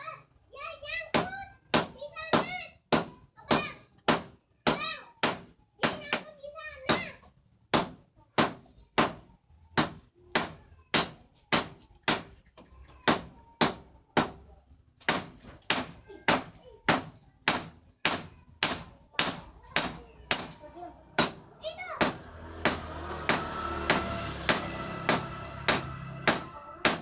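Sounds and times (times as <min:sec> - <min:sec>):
hammer blows on metal: 0:21.2 - 0:27.0.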